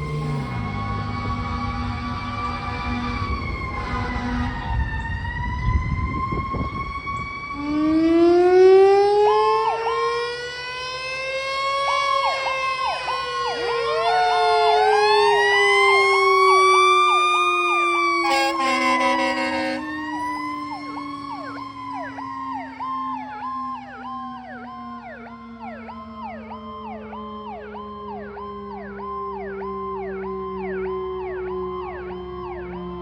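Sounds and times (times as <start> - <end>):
truck engine rumbling: 0.0 - 6.2, 12.8 - 22.1
deeper siren tone: 0.0 - 33.0
fire truck sirens wailing: 0.0 - 33.0
rapid repeating siren: 0.0 - 33.0.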